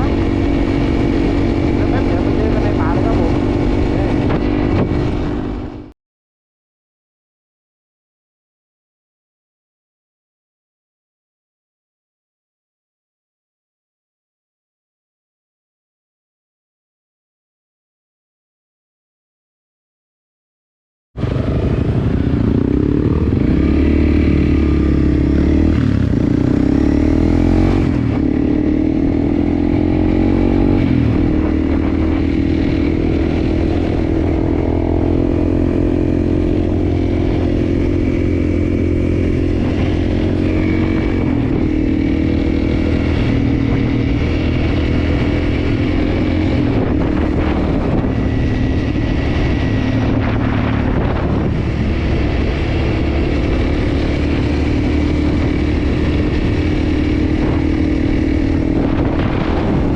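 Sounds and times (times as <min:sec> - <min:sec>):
motorcycle engine revving: 0:00.0 - 0:05.9, 0:21.2 - 0:59.9.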